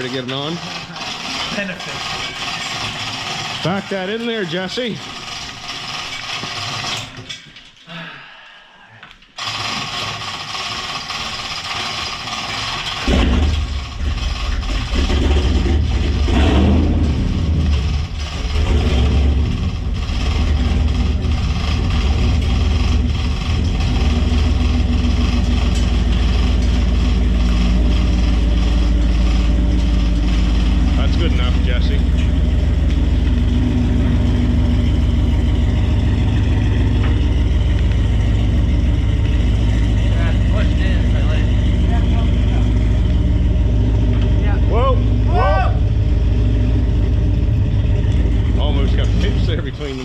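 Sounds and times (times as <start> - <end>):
truck engine starting and running: 0.0 - 7.6, 9.4 - 50.0.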